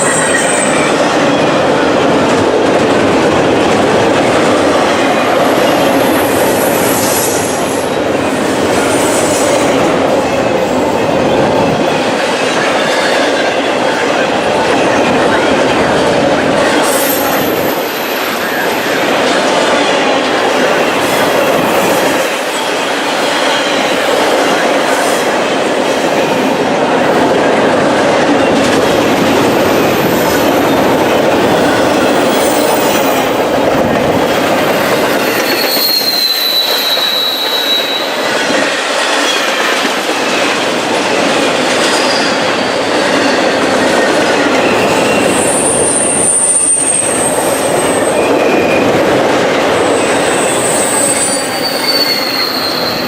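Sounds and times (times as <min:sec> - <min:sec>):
train wheels rumbling on rail: 0:00.0 - 0:53.0
wheel squeals: 0:34.8 - 0:38.3, 0:49.9 - 0:53.0.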